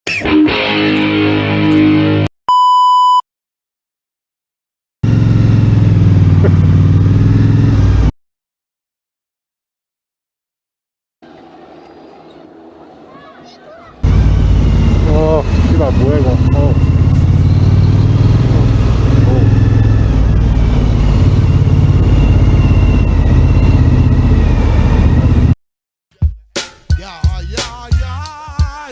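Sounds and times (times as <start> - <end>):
guitar music: 0.1 - 2.3
electronic beep: 2.5 - 3.2
vehicle engine running: 5.0 - 8.1, 14.0 - 25.6.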